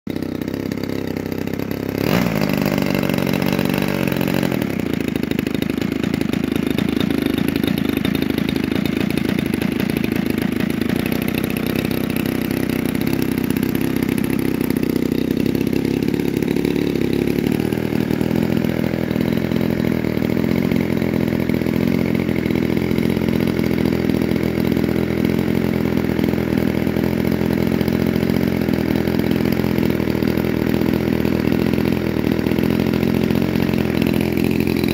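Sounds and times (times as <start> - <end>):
model aircraft engine running: 0.1 - 34.9.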